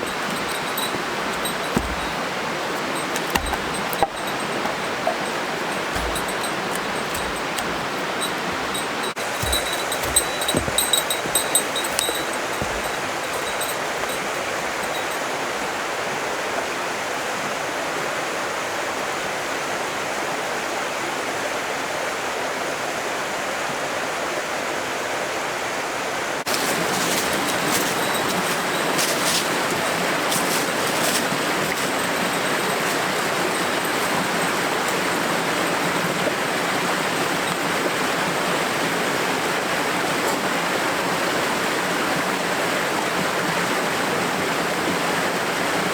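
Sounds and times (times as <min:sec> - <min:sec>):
running water rushing: 0:00.0 - 0:16.1.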